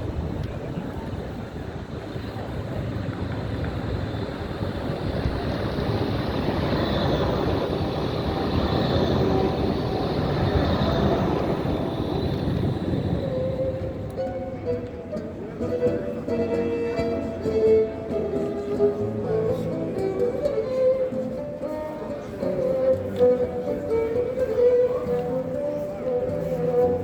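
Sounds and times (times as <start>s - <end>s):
tram rumbling past: 0.0s - 27.0s
faint high whine: 2.0s - 14.8s.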